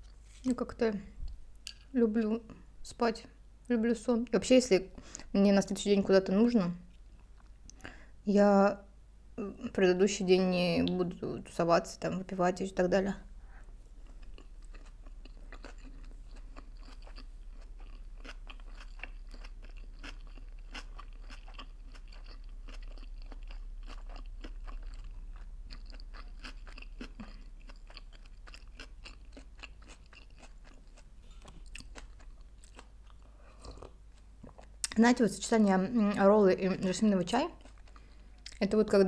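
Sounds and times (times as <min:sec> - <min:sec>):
chewing with mouth clicks: 0:14.0 - 0:35.0, 0:37.6 - 0:38.6.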